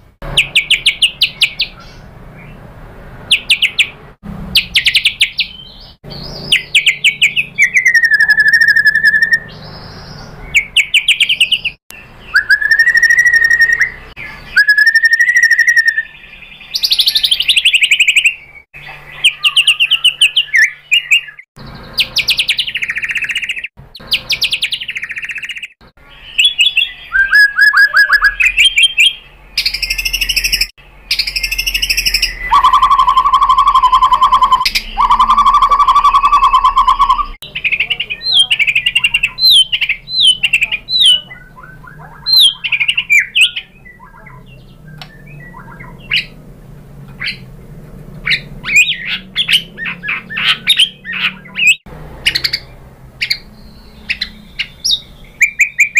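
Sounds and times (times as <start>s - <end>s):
bird singing trills and whistles: 0.3s - 2.6s, 3.3s - 4.0s, 4.6s - 46.4s, 47.1s - 47.5s, 48.2s - 55.9s.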